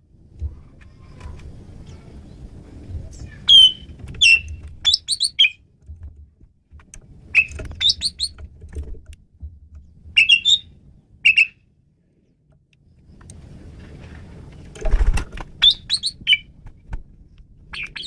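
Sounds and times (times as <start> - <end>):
faint low rumble: 0.0 - 18.0
starling singing: 3.1 - 5.6, 7.3 - 8.4, 10.2 - 11.6, 15.6 - 16.5, 17.7 - 18.0.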